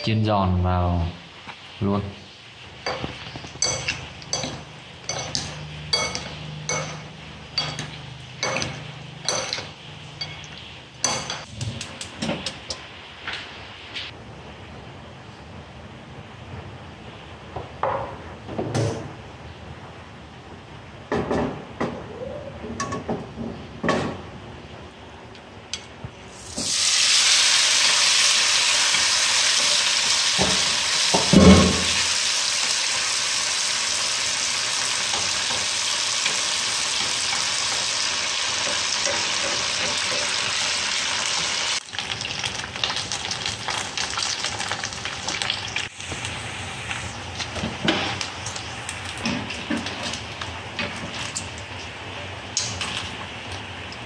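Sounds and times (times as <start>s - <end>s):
meat sizzling in hot oil: 26.3s - 53.9s.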